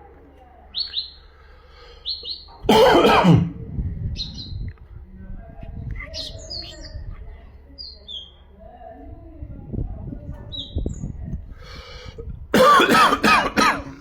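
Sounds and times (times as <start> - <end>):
bird chirping: 0.7 - 1.3, 1.9 - 2.7.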